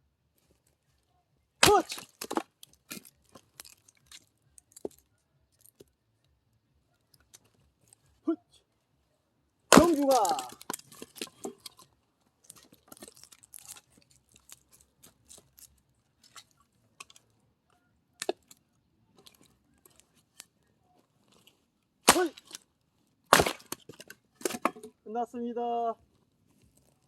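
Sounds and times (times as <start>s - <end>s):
person shouting: 1.6s - 2.0s, 9.8s - 10.6s, 22.1s - 22.4s
wood pieces clattering: 1.6s - 5.8s, 9.7s - 17.3s, 21.3s - 22.6s, 23.3s - 25.0s
axe splitting firewood: 1.6s - 5.9s, 9.7s - 17.2s, 18.2s - 20.6s, 21.2s - 25.0s.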